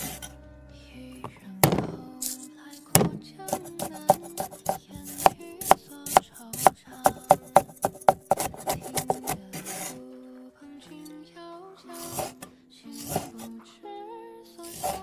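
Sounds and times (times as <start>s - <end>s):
background music: 0.0s - 15.0s
knife chopping food: 3.0s - 9.9s, 13.0s - 13.5s, 14.6s - 15.0s.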